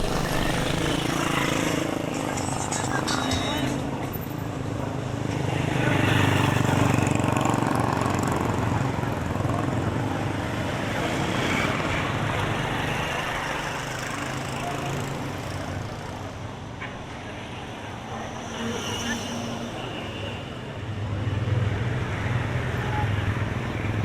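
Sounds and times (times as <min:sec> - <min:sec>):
passing vehicle engine: 0:00.0 - 0:03.8
street noise: 0:00.0 - 0:24.0.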